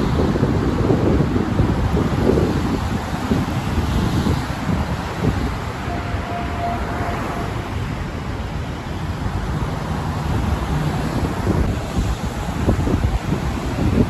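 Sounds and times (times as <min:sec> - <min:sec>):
steady traffic noise: 0:00.0 - 0:14.0
wind buffeting microphone: 0:00.0 - 0:14.0.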